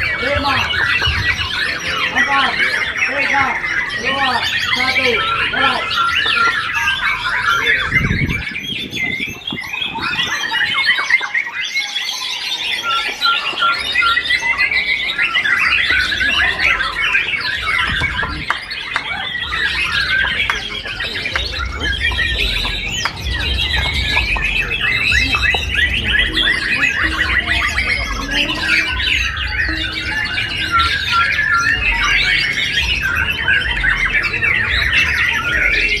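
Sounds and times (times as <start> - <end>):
songbirds chirping and trilling: 0.0 - 36.0.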